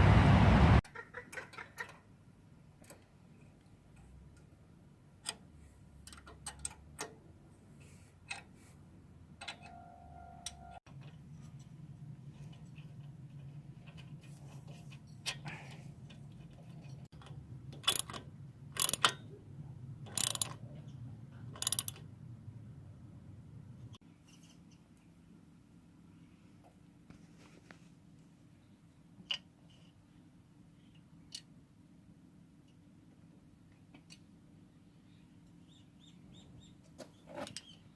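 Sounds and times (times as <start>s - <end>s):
metal tools clinking: 11.3s - 17.2s.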